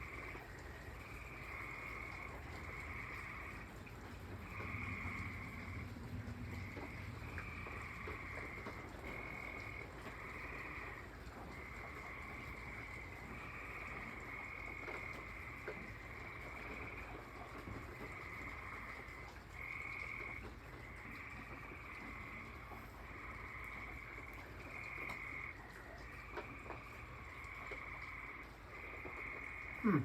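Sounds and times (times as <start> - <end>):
rain hiss: 0.0 - 30.0
tree frogs trilling: 0.0 - 30.0
water drips: 0.0 - 30.0.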